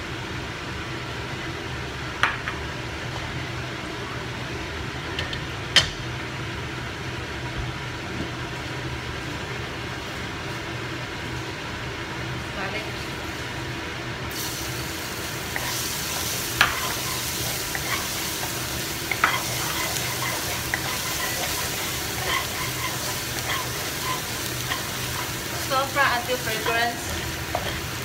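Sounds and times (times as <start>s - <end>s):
garlic sizzling in hot oil: 13.2s - 28.0s
wooden spatula scraping pan: 15.6s - 28.0s.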